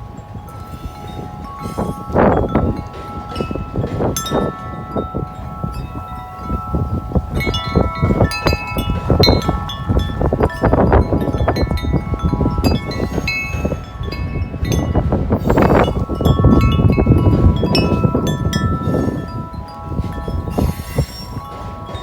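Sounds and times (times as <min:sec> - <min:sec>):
wind buffeting microphone: 0:00.0 - 0:22.0
wind chime ringing: 0:00.0 - 0:22.0.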